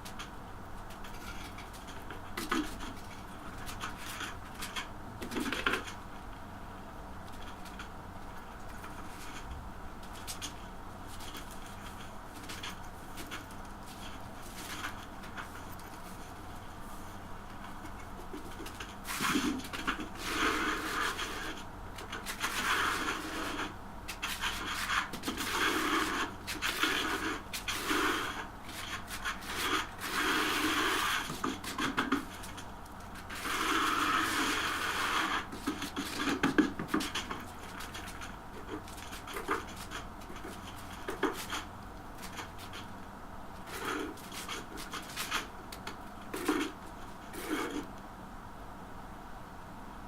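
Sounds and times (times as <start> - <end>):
hand rubbing tiles: 7.4 - 43.0, 43.6 - 47.9.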